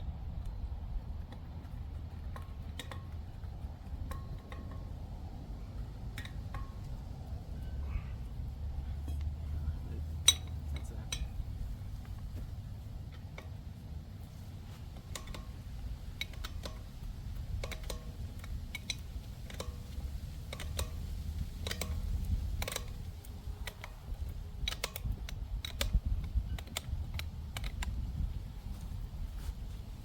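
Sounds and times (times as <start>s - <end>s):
low rumble: 3.1s - 16.1s
metallic tool clicks and clinks: 10.2s - 11.5s.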